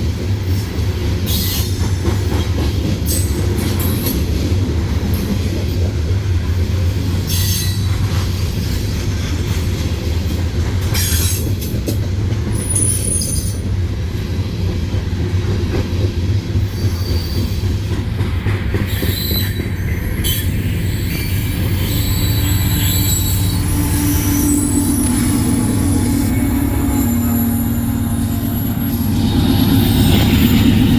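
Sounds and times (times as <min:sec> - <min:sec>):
train wheels rumbling on rail: 0:00.0 - 0:30.9
high-pitched wheel squeal: 0:19.0 - 0:30.9.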